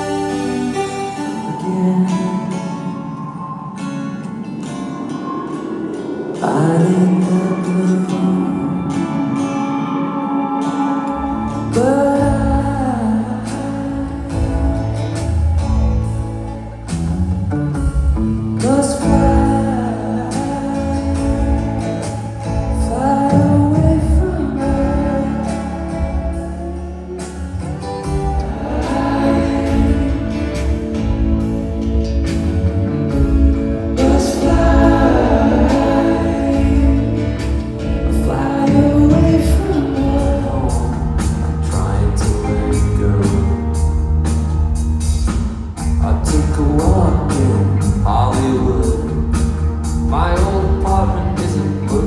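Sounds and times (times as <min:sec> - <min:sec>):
person singing: 0:00.0 - 0:03.6, 0:05.9 - 0:15.8, 0:18.6 - 0:31.4, 0:33.8 - 0:44.0
live band playing: 0:00.0 - 0:52.0
bass line: 0:10.6 - 0:52.0.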